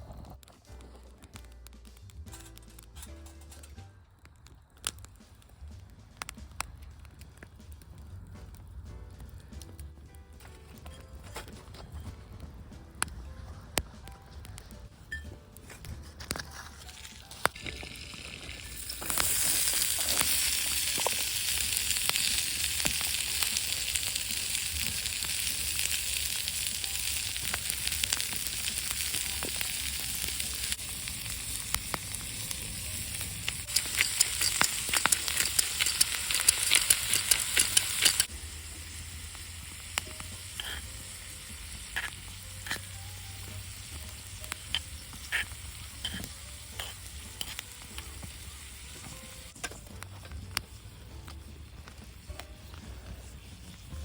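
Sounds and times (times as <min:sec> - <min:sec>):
meat sizzling on a griddle: 0:16.8 - 0:54.0.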